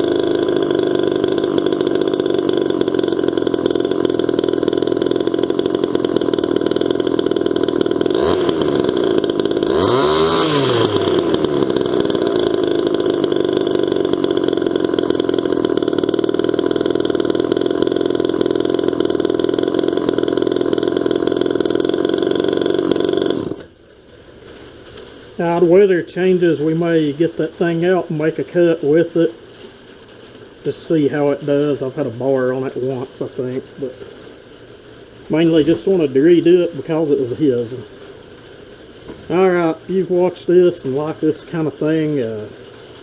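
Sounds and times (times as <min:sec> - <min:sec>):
chainsaw running and revving: 0:00.0 - 0:23.7.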